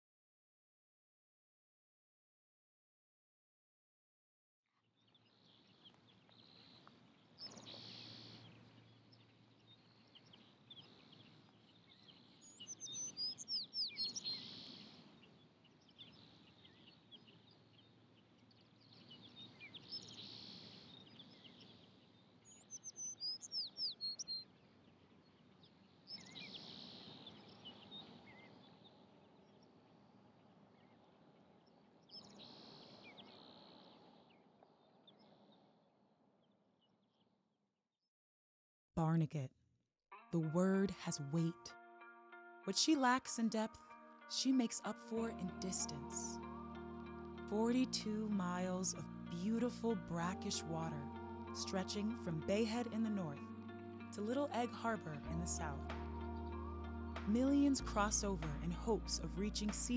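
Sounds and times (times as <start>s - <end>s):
birds chirping: 5.0s - 35.7s.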